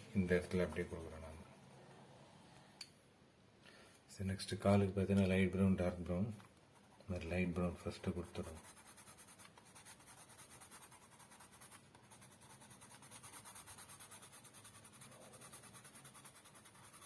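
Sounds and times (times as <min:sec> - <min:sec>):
pencil shading on paper: 0:08.0 - 0:17.0.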